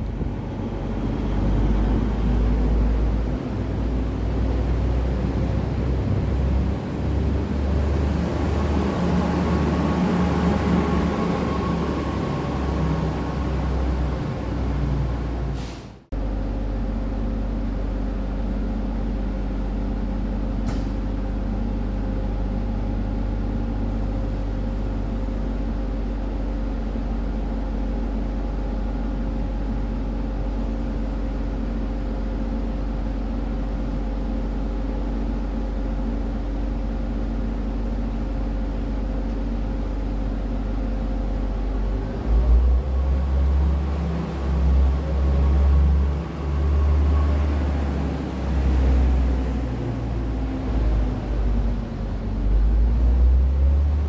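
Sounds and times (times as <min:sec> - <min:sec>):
uneven low rumbling: 0:00.0 - 0:15.6
train idling hum: 0:00.0 - 0:54.0.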